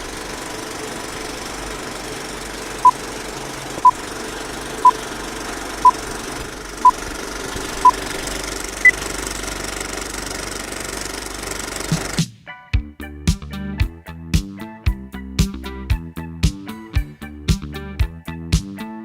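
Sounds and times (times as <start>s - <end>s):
engine-like drone: 0.0s - 12.2s.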